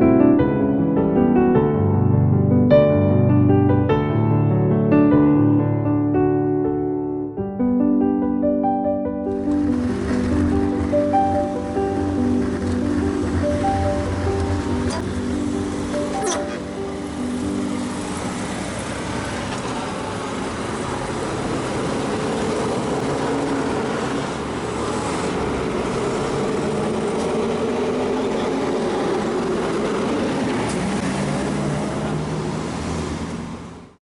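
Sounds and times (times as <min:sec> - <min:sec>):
road traffic noise: 0:09.2 - 0:34.0
vehicle engines humming: 0:09.3 - 0:34.0.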